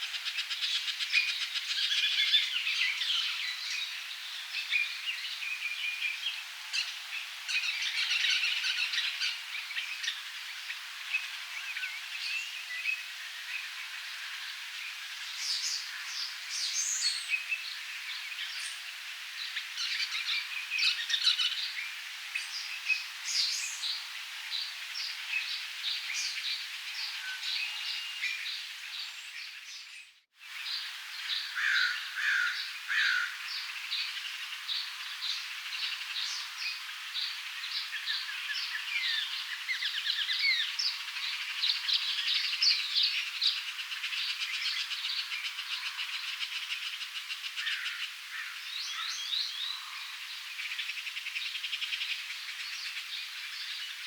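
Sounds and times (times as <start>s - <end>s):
lower louder bird calls: 0.0s - 54.0s
birds chirping and calling: 30.7s - 50.2s.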